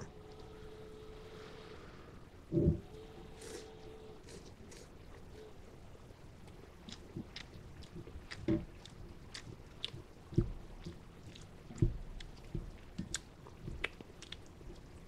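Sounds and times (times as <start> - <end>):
person chewing noodles: 3.4 - 5.4, 6.6 - 15.0.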